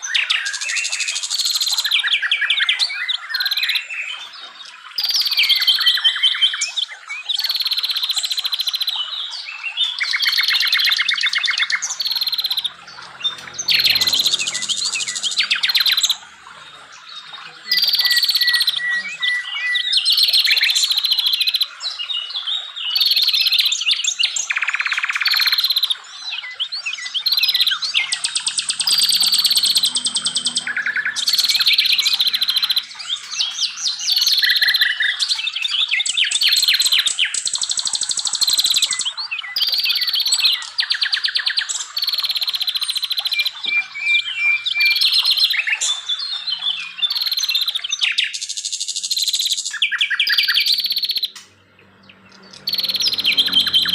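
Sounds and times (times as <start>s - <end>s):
chorus of songbirds: 0.0s - 53.9s.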